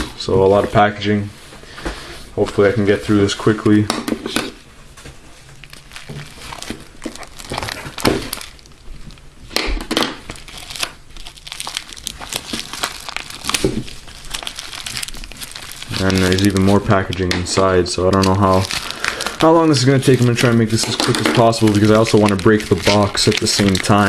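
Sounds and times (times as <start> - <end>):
packaging crinkling: 3.7 - 24.0
packaging tearing: 5.5 - 24.0.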